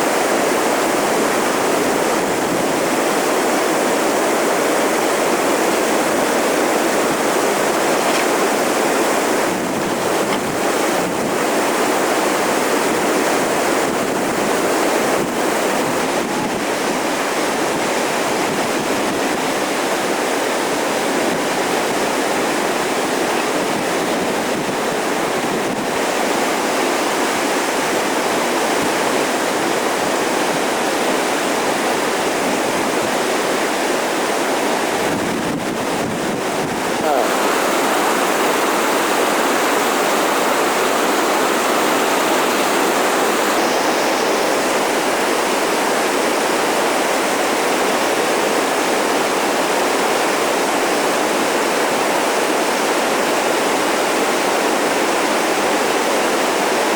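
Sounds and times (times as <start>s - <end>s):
whitewater rapids rushing: 0.0s - 56.9s.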